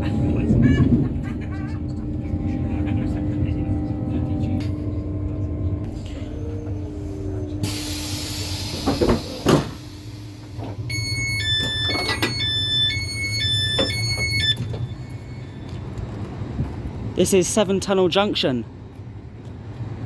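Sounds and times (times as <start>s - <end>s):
train low hum: 0.0s - 20.0s
air hiss: 7.6s - 10.6s
electronic door warning beep: 10.9s - 15.6s
train doors knocking: 11.4s - 15.0s.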